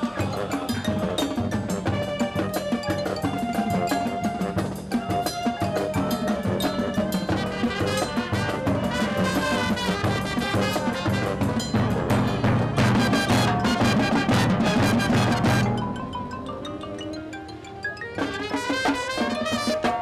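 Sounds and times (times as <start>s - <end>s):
marching band brass chords: 0.0s - 15.9s, 18.2s - 20.0s
steady drum beat: 0.0s - 16.0s.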